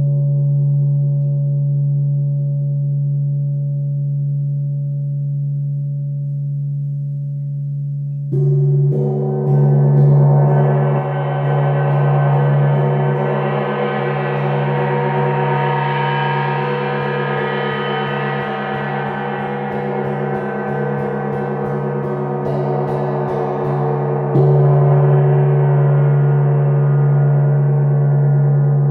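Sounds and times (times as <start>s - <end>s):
steady low drone: 6.4s - 28.9s
gong ringing: 8.4s - 28.0s.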